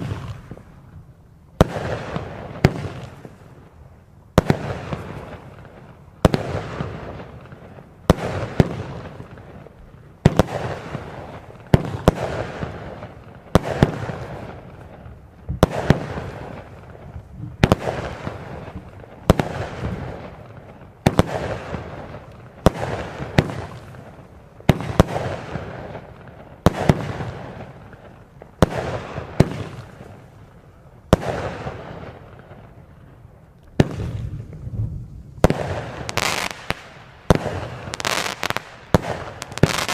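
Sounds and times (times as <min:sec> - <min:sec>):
firework burst crackle: 0:00.0 - 0:00.9, 0:33.7 - 0:39.9
firework reports: 0:00.0 - 0:00.9.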